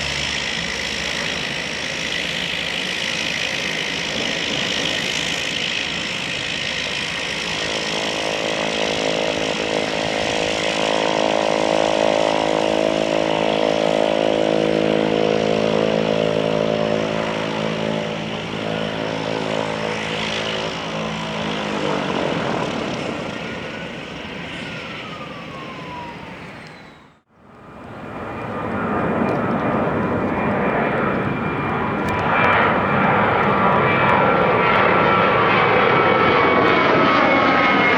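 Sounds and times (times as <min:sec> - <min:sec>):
aircraft engine roar: 0:00.0 - 0:37.9
airliner engines passing: 0:00.0 - 0:37.9.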